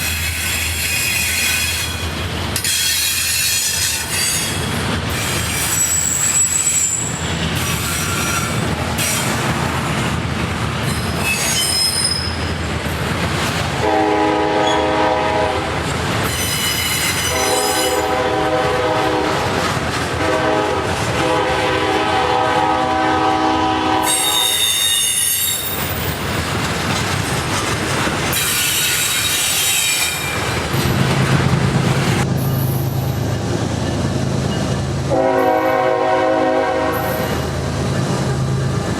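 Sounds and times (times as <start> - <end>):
steel wheels squealing: 0.0 - 9.4, 10.8 - 12.7, 16.2 - 18.1, 24.0 - 26.4, 28.3 - 30.9
freight train passing: 0.0 - 38.9
train air horn: 13.8 - 15.7, 17.0 - 19.4, 20.2 - 25.7, 35.1 - 37.4.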